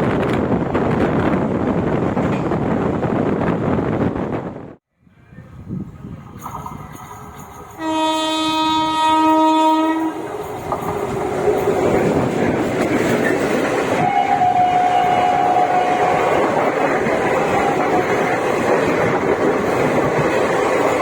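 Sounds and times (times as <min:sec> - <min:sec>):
train horn blast: 0:07.8 - 0:10.5, 0:14.0 - 0:18.1
train wheels clattering: 0:09.5 - 0:21.0.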